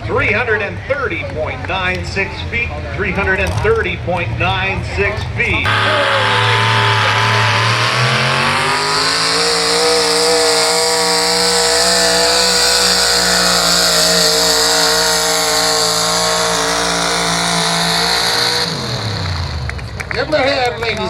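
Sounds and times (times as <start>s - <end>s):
engine at full throttle: 5.6s - 21.0s.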